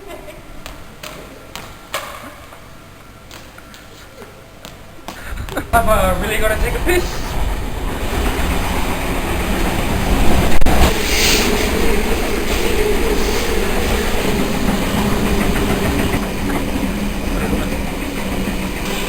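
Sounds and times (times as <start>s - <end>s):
train wheels rumbling on rails: 4.6s - 19.0s
brief hiss: 10.8s - 11.9s.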